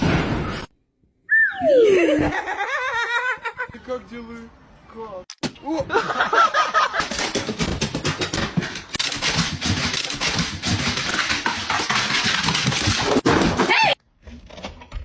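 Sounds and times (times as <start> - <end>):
animal wavering cry: 1.3 - 2.1.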